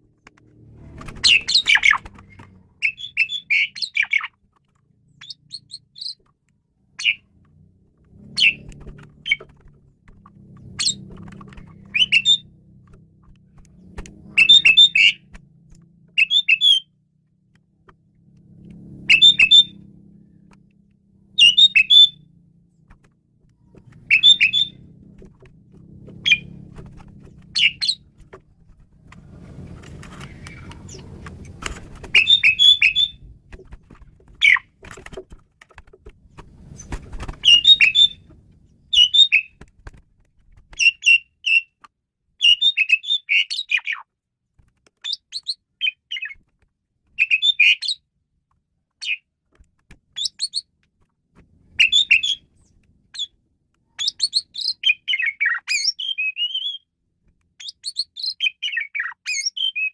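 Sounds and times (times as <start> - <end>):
starling singing: 1.2 - 4.4, 5.2 - 6.2, 7.0 - 7.3, 8.2 - 9.6, 10.6 - 12.5, 14.3 - 15.3, 16.2 - 16.9, 19.0 - 19.8, 21.4 - 22.2, 23.9 - 25.0, 26.2 - 28.2, 32.0 - 33.3, 34.4 - 34.8, 36.7 - 38.3, 38.9 - 39.6, 47.2 - 48.0, 51.8 - 52.5, 54.0 - 56.8, 57.6 - 59.9.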